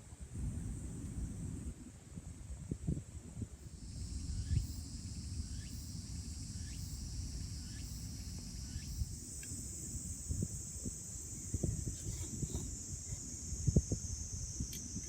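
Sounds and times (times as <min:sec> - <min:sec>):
insects trilling: 0:03.6 - 0:15.0.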